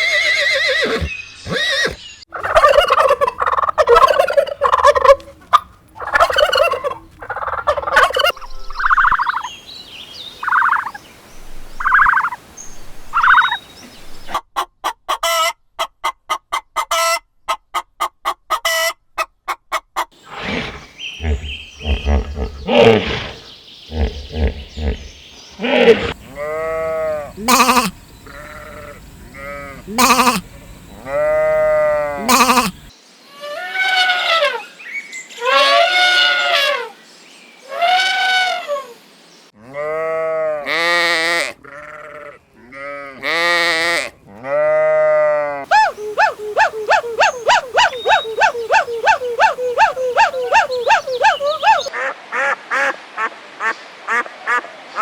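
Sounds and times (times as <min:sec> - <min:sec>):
livestock bleating: 0:25.6 - 0:32.9, 0:39.6 - 0:45.6.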